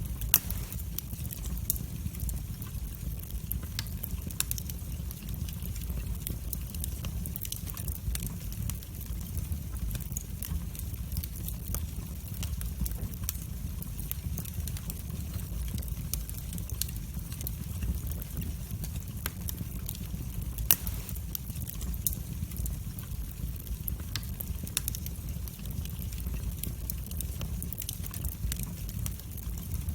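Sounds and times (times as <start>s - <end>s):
wood fire crackling and popping: 0.0s - 29.9s.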